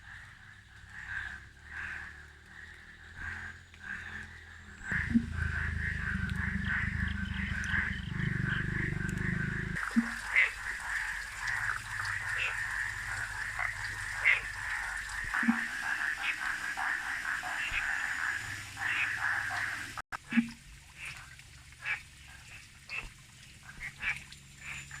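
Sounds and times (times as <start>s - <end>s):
frogs croaking: 0.0s - 25.0s
steady high drone: 4.9s - 9.8s.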